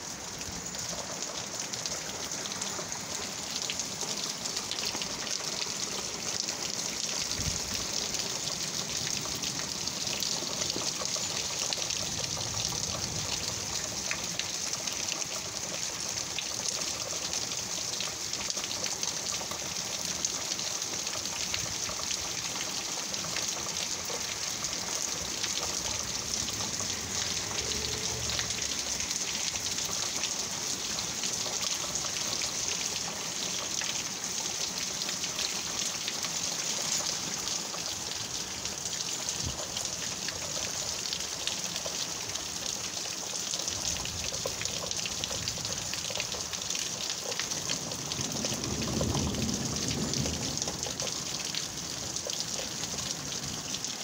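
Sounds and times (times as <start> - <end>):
heavy rain: 0.0 - 54.0
thunder rumbling: 48.0 - 51.0.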